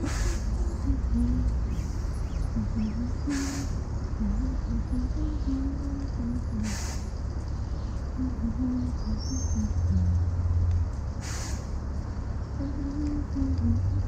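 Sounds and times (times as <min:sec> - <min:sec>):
street traffic: 0:00.0 - 0:14.0
wind and road rumble: 0:00.0 - 0:14.0
short hisses: 0:11.2 - 0:11.7.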